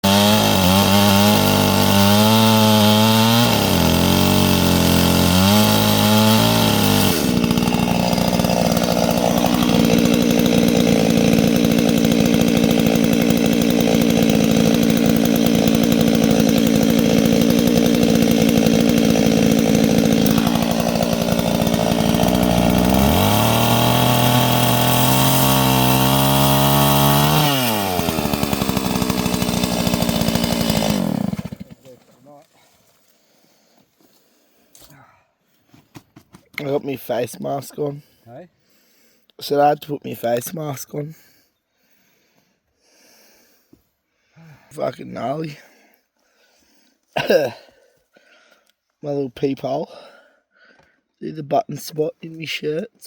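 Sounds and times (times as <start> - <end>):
chainsaw revving: 0.0 - 31.9.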